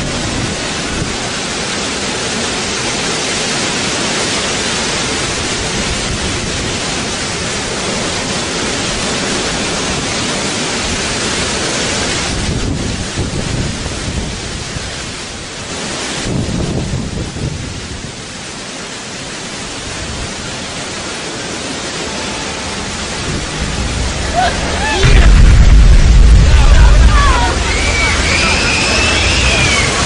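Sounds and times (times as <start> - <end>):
heavy rain hiss: 0.0 - 30.0
low rumble of thunder: 23.0 - 30.0.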